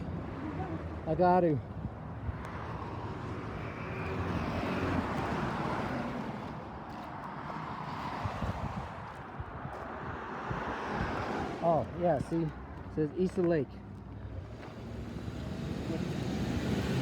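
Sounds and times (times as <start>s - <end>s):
vehicle going by: 2.4s - 8.8s, 12.9s - 17.0s.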